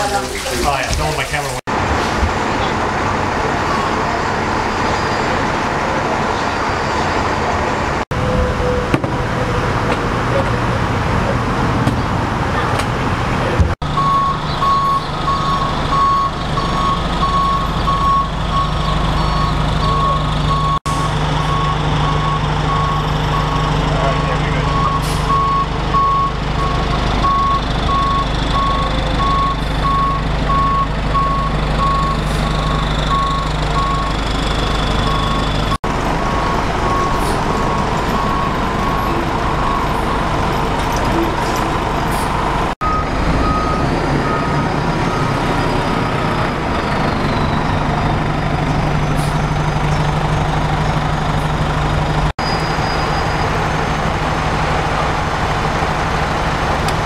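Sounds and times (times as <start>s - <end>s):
heavy truck engine running: 0.0s - 57.0s
reversing alarm beeping: 13.9s - 40.4s, 42.8s - 46.0s
higher-pitched beeper: 14.0s - 40.2s.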